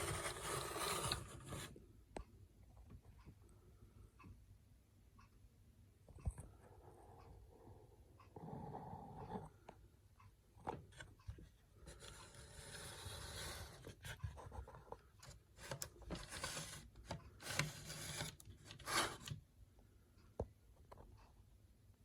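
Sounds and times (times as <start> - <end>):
rubbing and scraping: 0.0 - 1.7, 11.8 - 19.4.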